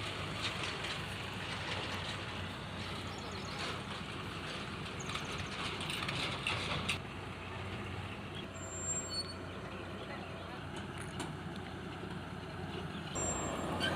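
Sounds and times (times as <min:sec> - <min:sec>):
machinery rattles: 0:00.0 - 0:07.0
combine harvester engine drone: 0:00.0 - 0:13.9.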